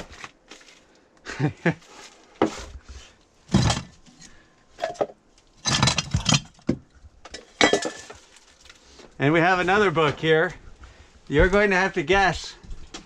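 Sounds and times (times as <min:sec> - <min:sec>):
debris clattering and clinking: 0:03.5 - 0:08.8.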